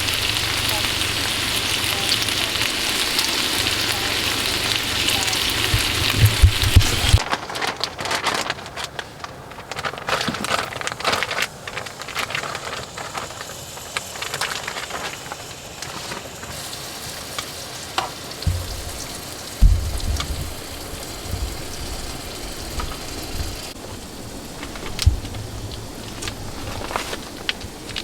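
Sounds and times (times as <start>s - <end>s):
food sizzling in a pan: 0.0s - 7.3s, 12.8s - 28.0s
low rumble: 18.5s - 26.6s.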